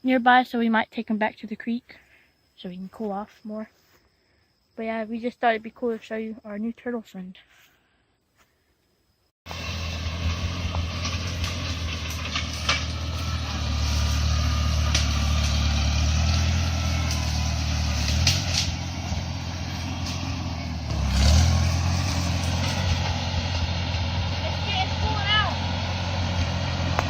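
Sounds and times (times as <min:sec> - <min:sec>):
tractor engine running: 0:09.5 - 0:27.0
clanks and knocks: 0:10.6 - 0:13.4.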